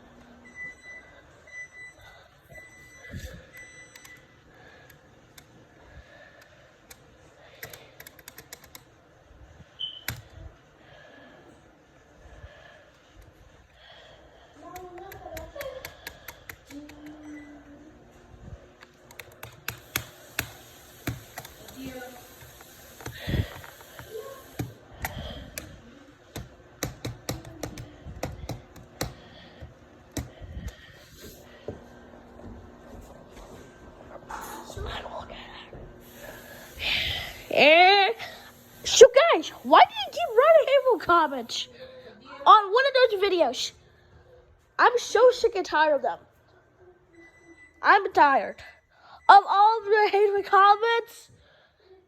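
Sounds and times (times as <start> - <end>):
sharp clicks and taps: 26.3 - 30.3.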